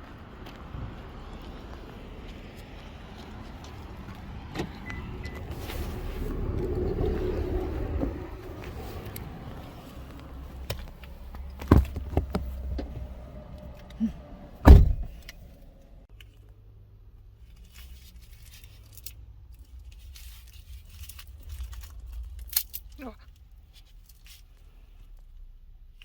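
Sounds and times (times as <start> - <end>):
loud thuds: 11.6 - 13.0, 14.6 - 15.2
rustling: 17.3 - 26.0.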